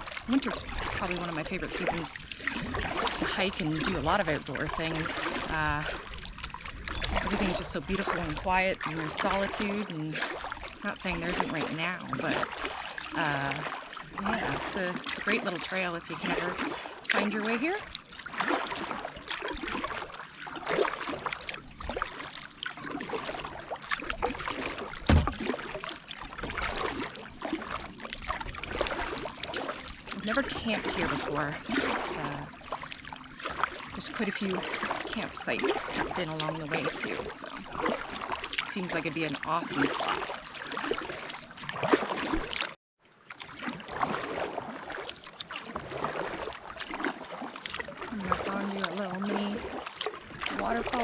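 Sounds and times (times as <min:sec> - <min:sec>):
paddle strokes in water: 0:00.0 - 0:51.0
water dripping and splashing: 0:00.0 - 0:51.0
dull thump: 0:25.0 - 0:25.6.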